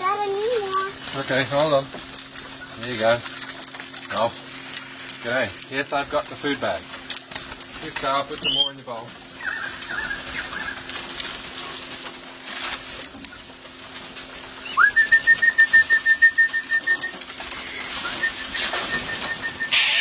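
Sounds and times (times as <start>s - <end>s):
bird alarm call: 9.4s - 10.8s.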